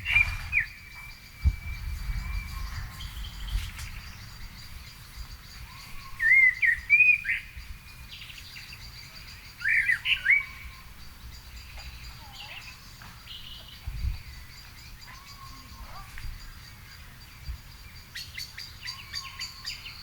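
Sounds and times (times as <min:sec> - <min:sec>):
songbirds singing: 0:00.0 - 0:20.0.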